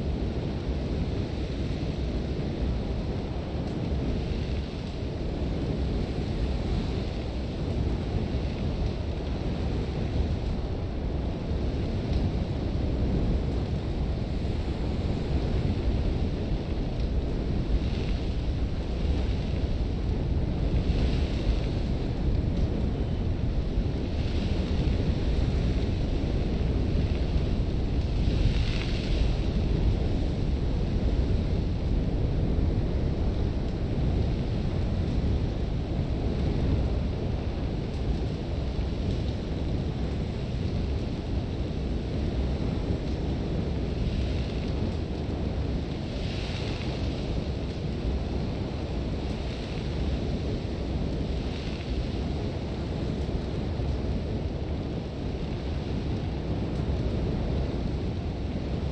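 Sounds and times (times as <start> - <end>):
wind buffeting: 0.0 - 58.8
hiss of blowing sand: 41.8 - 53.8.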